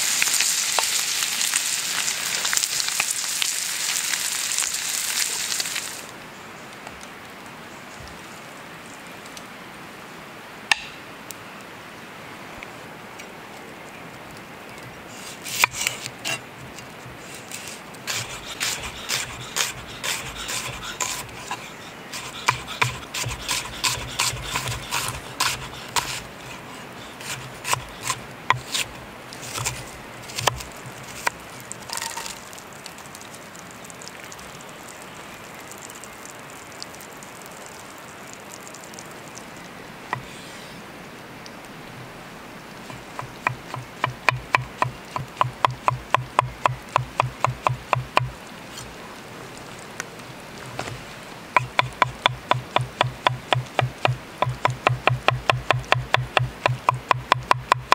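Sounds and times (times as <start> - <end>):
steady background hiss: 0.0 - 57.9
cooking utensils scraping and tapping: 17.6 - 26.6.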